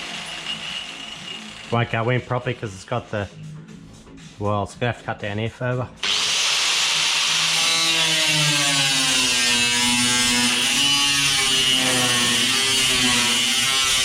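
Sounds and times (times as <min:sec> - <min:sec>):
power tool cutting sheet steel: 0:00.0 - 0:02.6, 0:06.0 - 0:14.0.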